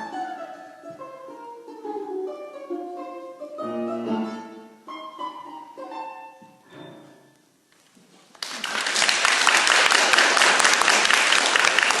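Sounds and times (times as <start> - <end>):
music: 0.0 - 7.4
audience applause: 8.4 - 12.0.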